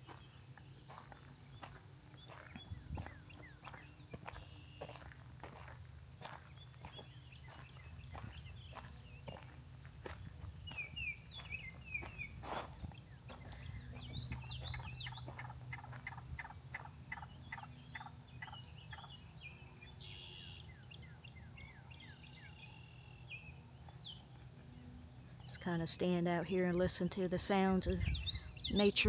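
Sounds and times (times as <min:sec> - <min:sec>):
birds chirping and trilling: 0:10.6 - 0:24.4, 0:25.2 - 0:29.0
repeated bird notes: 0:25.5 - 0:29.0.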